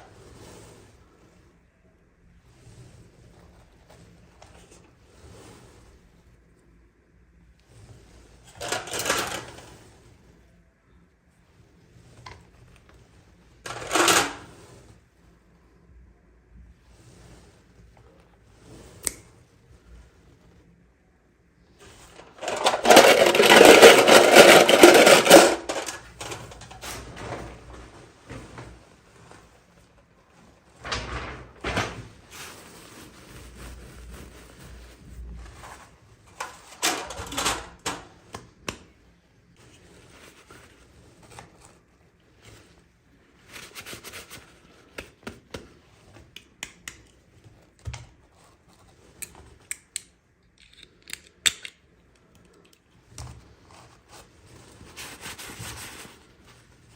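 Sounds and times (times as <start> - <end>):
packaging rustling: 22.1 - 26.8
plastic pieces clicking: 22.2 - 26.4, 49.7 - 52.8.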